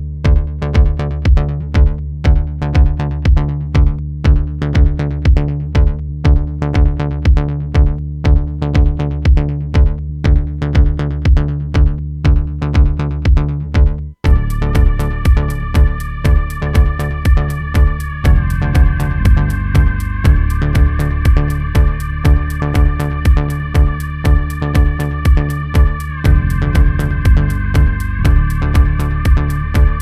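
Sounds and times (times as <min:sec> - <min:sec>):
electronic background music: 0:14.3 - 0:30.0.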